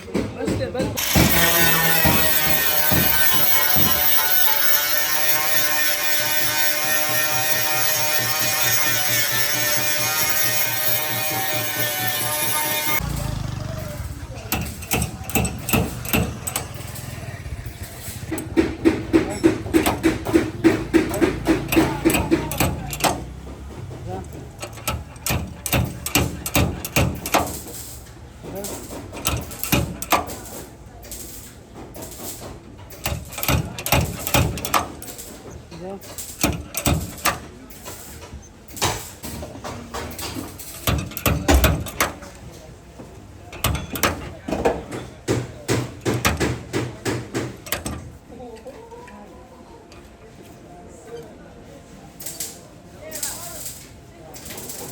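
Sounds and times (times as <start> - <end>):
knocks and clanks on car body: 0.0 - 4.5, 14.3 - 17.0, 18.0 - 30.8, 31.8 - 35.5, 36.2 - 37.6, 38.8 - 48.2
hammer striking sheet metal: 1.0 - 13.1, 14.4 - 17.1, 17.8 - 23.8, 45.3 - 48.1.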